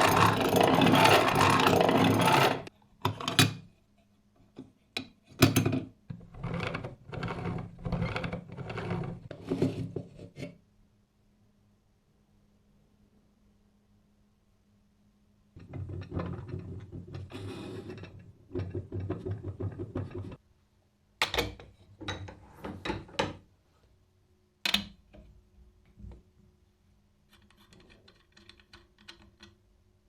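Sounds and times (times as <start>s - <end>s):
hand-cranked grinder rattling: 0.0s - 2.7s.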